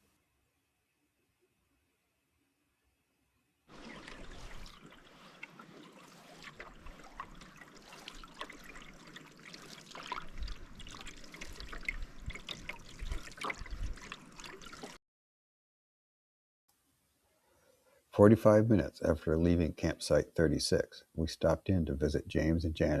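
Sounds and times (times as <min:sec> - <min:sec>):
paddle splashing in water: 0:03.7 - 0:15.0
water dripping: 0:03.7 - 0:15.0.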